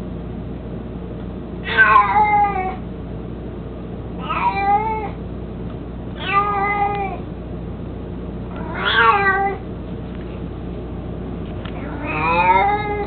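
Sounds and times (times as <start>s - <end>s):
cat meowing: 1.6s - 2.8s, 4.2s - 5.2s, 6.2s - 7.2s, 8.5s - 9.6s, 11.8s - 13.0s.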